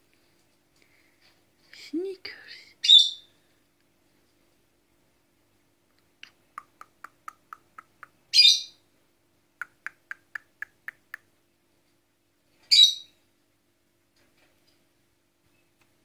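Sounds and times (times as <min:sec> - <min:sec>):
bird chirping: 0:06.6 - 0:08.8, 0:12.6 - 0:13.2.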